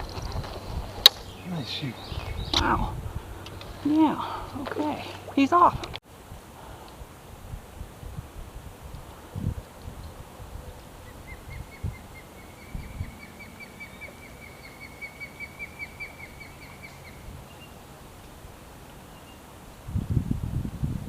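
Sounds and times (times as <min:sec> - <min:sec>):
bird chirping: 0:00.0 - 0:02.9, 0:11.0 - 0:17.8
low wind rumble: 0:00.0 - 0:21.0.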